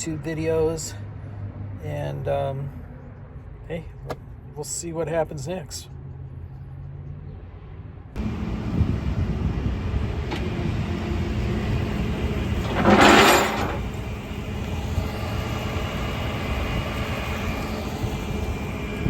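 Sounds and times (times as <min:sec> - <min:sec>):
truck engine rumbling: 0:08.2 - 0:19.0.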